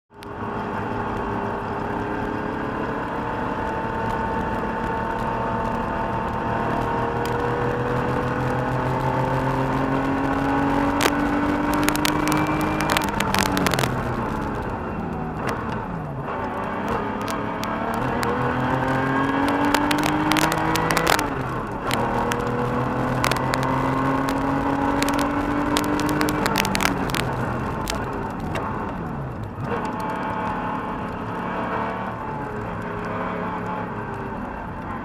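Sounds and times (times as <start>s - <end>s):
car engine revving: 0.2s - 35.0s
sharp clicks: 10.7s - 14.8s, 16.4s - 31.4s.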